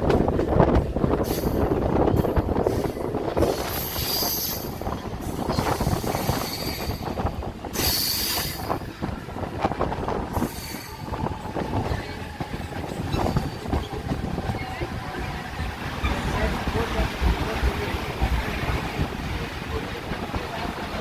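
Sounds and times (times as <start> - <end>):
train wheels rumbling on track: 0.0 - 21.0
high wheel squeal: 5.5 - 7.1.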